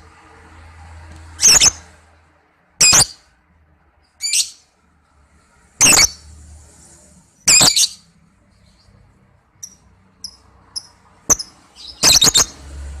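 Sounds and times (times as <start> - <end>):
lovebird chattering calls: 1.4 - 1.9, 2.8 - 3.2, 4.2 - 4.6, 5.8 - 6.2, 7.5 - 8.0, 9.6 - 12.6.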